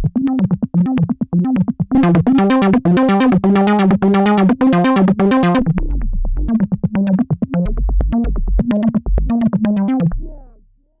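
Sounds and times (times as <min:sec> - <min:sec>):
synthesizer acid bass line: 0:02.0 - 0:06.0.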